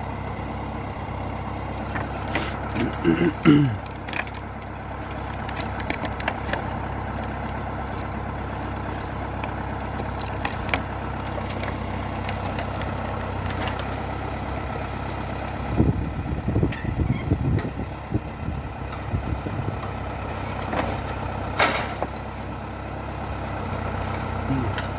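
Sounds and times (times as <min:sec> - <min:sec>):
tractor diesel engine running: 0:00.0 - 0:24.9
low rumbling bursts: 0:13.4 - 0:20.5.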